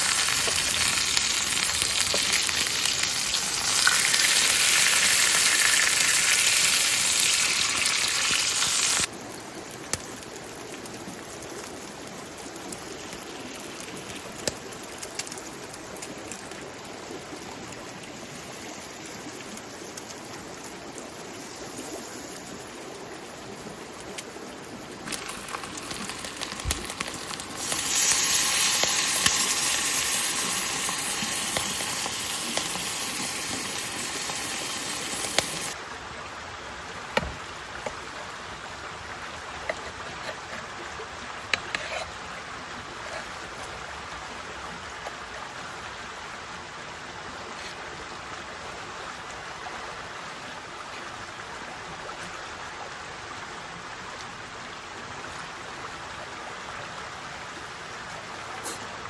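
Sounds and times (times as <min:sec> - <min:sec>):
steady rain falling: 0:00.0 - 0:41.6
loud hiss: 0:27.4 - 0:35.8.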